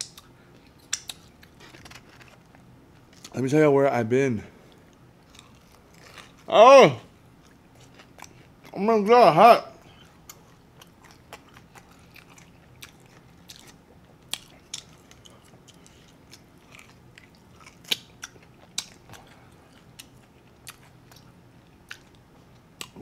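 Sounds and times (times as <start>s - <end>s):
person chewing fried chicken: 4.7s - 6.5s, 7.4s - 8.8s, 9.8s - 23.0s.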